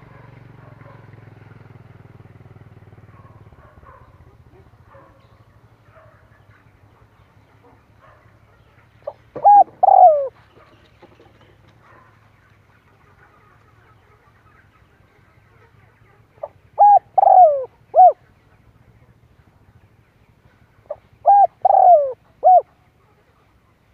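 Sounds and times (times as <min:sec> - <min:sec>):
dove cooing: 0:09.0 - 0:12.1, 0:15.7 - 0:18.2, 0:20.9 - 0:22.9.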